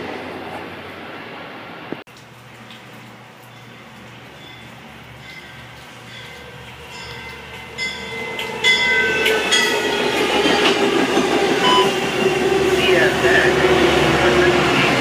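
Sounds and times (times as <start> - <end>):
train rumbling past: 0.0 - 2.0, 3.7 - 15.0
wheels squealing on rails: 4.4 - 15.0.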